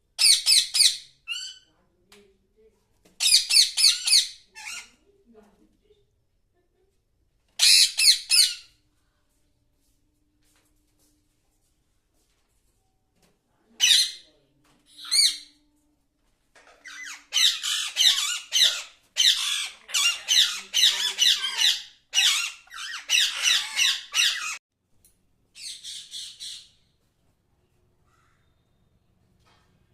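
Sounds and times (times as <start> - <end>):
parrot squawking: 3.2 - 4.9, 7.6 - 8.7, 15.0 - 15.5, 16.8 - 24.6.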